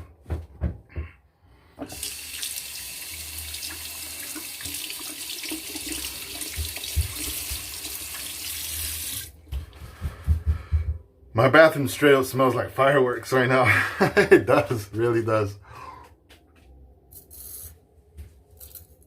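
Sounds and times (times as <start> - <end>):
tap running into sink basin: 1.8 - 2.5, 3.6 - 9.3.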